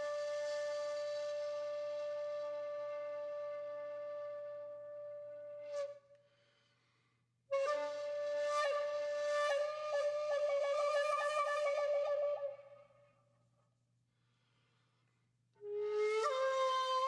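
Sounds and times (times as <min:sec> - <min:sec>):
flute-like wind instrument trills: 0:07.5 - 0:12.9, 0:15.6 - 0:17.0.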